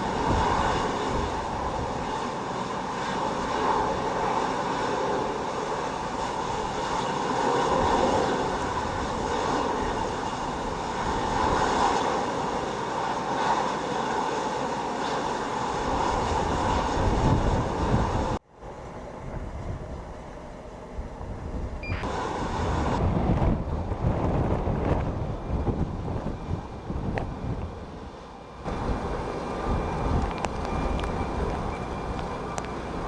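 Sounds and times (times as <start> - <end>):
wind buffeting microphone: 0.0 - 2.3, 5.2 - 12.7, 15.7 - 18.4, 19.2 - 20.3, 20.9 - 33.0
jet engines whining: 0.0 - 33.0.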